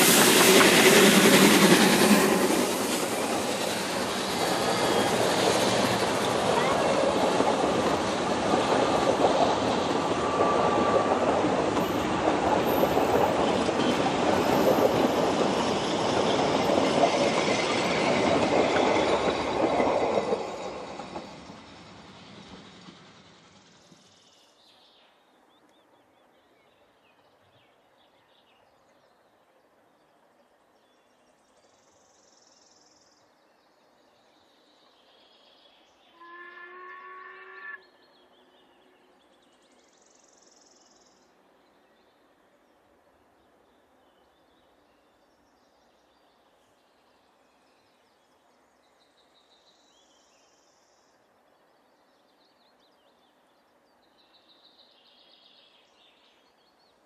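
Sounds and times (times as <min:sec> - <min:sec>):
train coaches rolling past: 0:00.0 - 0:26.2.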